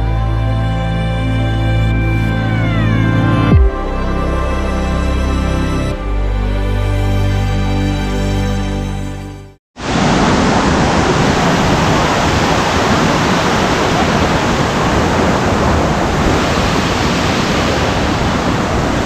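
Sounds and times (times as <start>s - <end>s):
background music: 0.0s - 9.6s
waterfall rushing: 9.8s - 19.0s.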